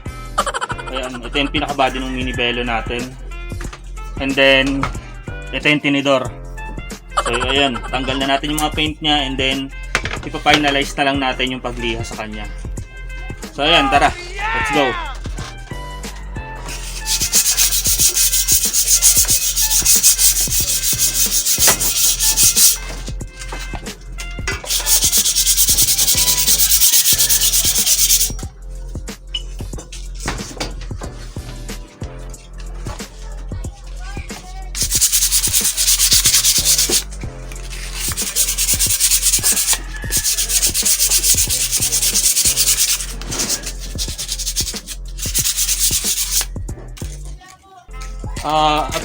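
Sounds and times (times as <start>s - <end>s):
sandpaper rasping on metal: 16.6s - 23.7s, 24.6s - 28.4s, 33.8s - 46.5s.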